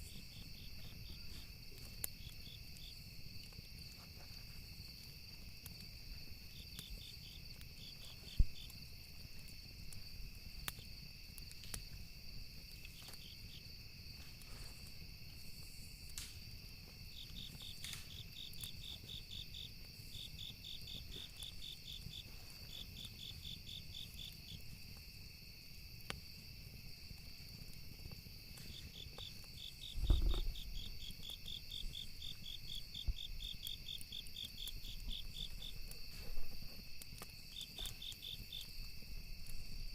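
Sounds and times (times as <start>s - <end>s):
crickets chirping: 0.0s - 39.9s
high insect drone: 0.0s - 39.9s
wood fire crackling and popping: 0.0s - 39.9s
low thump: 30.0s - 30.6s.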